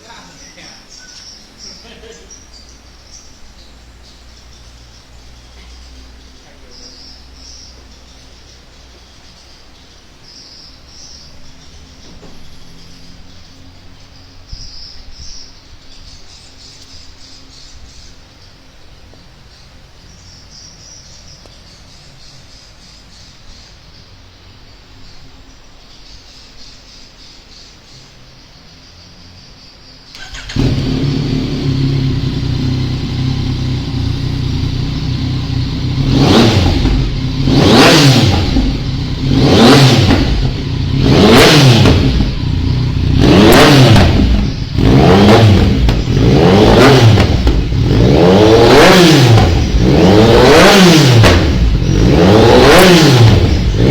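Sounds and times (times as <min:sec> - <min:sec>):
faint background ambience: 0:00.0 - 0:50.6
motorcycle engine revving: 0:30.1 - 0:53.9.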